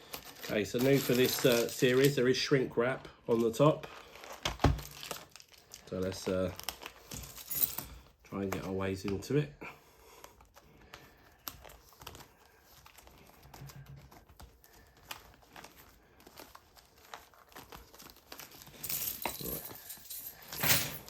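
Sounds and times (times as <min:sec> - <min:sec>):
plastic wrap tearing: 0:00.0 - 0:09.3, 0:10.2 - 0:19.7
plastic wrap crinkling: 0:00.0 - 0:20.5.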